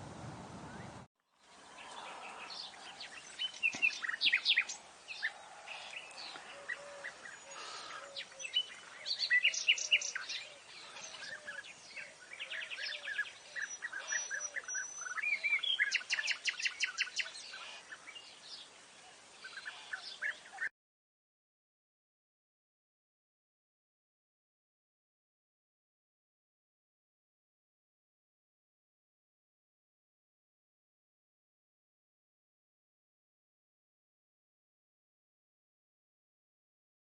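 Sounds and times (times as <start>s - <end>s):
birds chirping and trilling: 0.7s - 20.7s
soft low bird calls: 0.7s - 20.7s.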